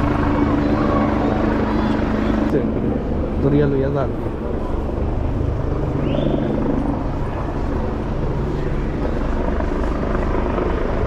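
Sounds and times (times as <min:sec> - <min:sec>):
helicopter rotor chopping: 0:00.0 - 0:11.0
helicopter rumble: 0:00.0 - 0:11.0.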